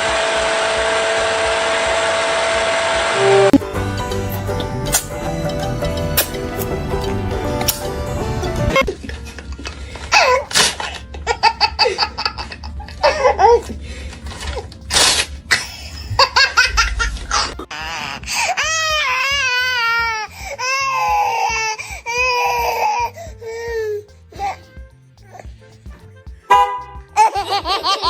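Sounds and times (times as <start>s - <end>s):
baby laughing: 8.7s - 13.8s, 15.5s - 24.7s, 27.1s - 28.0s
baby squealing: 10.1s - 10.7s, 17.3s - 24.7s.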